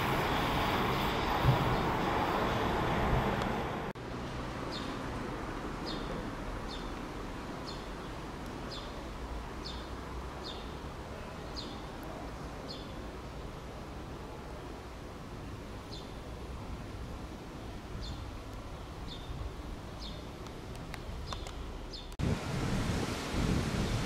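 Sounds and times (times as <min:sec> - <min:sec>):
loud train noise: 0:00.0 - 0:03.9
quiet steady background noise: 0:00.0 - 0:24.0
bird chirping: 0:04.7 - 0:05.0, 0:07.6 - 0:09.0, 0:09.6 - 0:11.9, 0:18.0 - 0:18.3, 0:19.0 - 0:19.4, 0:20.0 - 0:20.4, 0:21.2 - 0:22.2.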